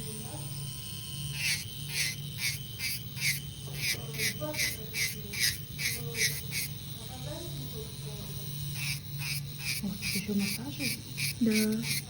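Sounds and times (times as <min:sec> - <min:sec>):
electric nail drill humming: 0:00.0 - 0:12.0
drill bit filing fingernail: 0:01.2 - 0:07.2, 0:08.6 - 0:12.0.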